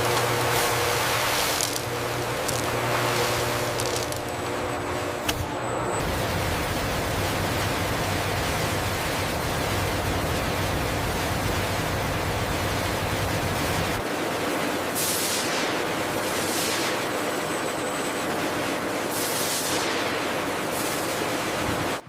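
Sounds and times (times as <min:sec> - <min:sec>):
low hum: 0:00.0 - 0:14.0
factory machinery rushing: 0:00.0 - 0:22.0.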